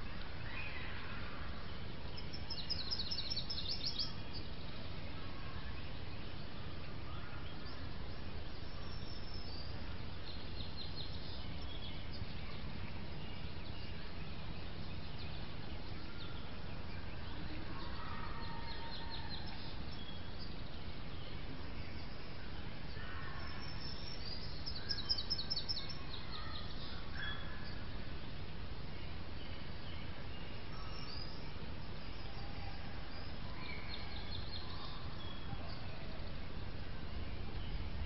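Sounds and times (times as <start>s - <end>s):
songbird trill: 0.0s - 38.0s
bird chirps: 2.1s - 4.5s, 5.6s - 27.9s.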